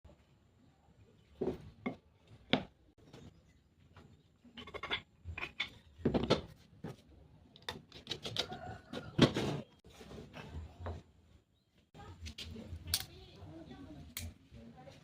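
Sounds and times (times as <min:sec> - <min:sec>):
objects knocking and scraping: 0:01.3 - 0:11.2.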